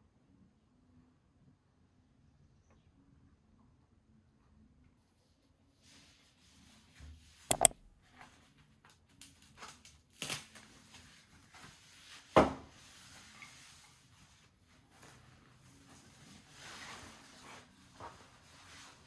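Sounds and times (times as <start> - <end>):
sharp clicks and knocks: 7.5 - 7.8.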